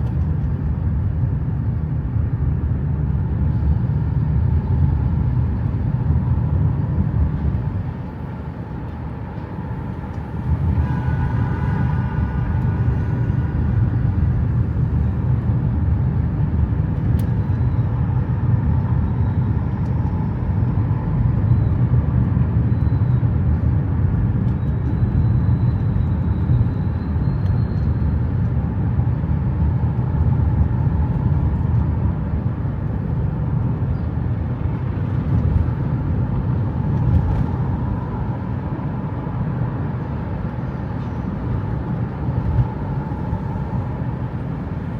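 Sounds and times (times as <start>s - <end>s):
vehicle road and engine rumble: 0.0s - 44.9s.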